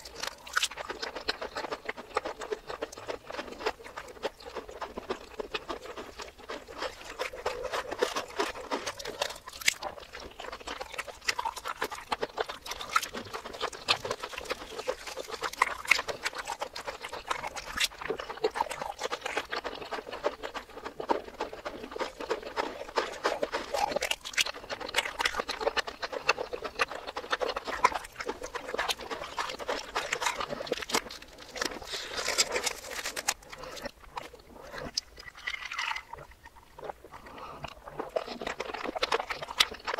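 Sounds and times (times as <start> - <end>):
chewing and crunching food: 0.0 - 39.9
wet mouth clicks: 0.0 - 39.9.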